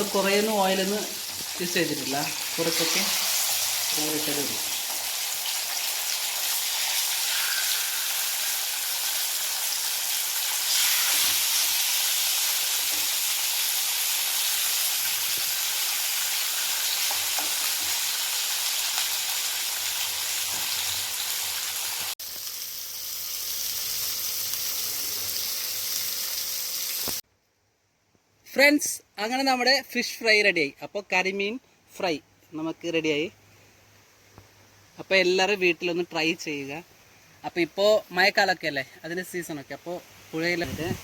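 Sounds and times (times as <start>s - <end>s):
fish sizzling in oil: 0.0s - 27.2s.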